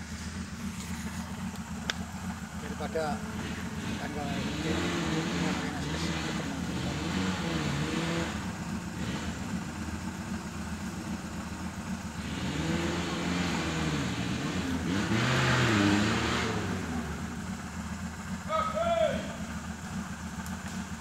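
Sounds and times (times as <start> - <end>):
engine revving: 0.0 - 10.8, 11.8 - 18.4.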